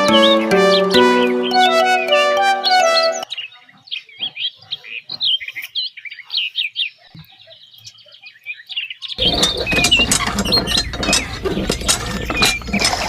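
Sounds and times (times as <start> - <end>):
background music: 0.0 - 3.3.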